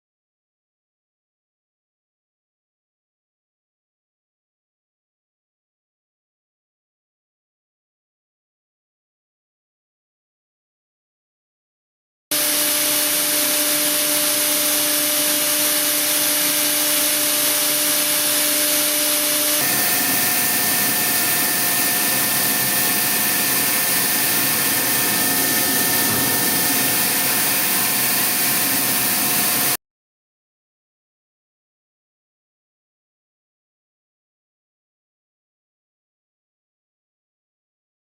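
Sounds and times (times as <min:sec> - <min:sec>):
polishing tool hiss: 0:12.3 - 0:29.8
spindle high whine: 0:12.4 - 0:29.8.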